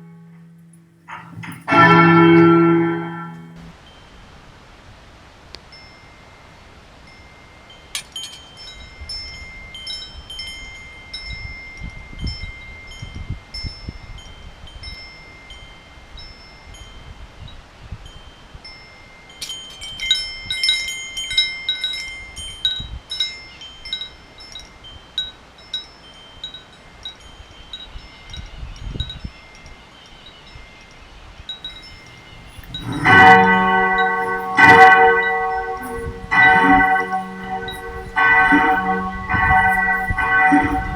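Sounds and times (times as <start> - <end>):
deep bell ringing: 0.0 - 3.7, 32.0 - 40.9
metal wind chimes tinkling: 1.1 - 4.1, 5.7 - 17.2, 18.0 - 40.9.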